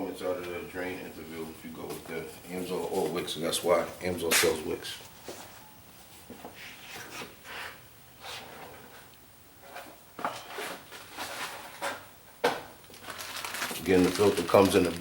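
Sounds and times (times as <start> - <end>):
small parts rustling and knocking: 9.8 - 15.0.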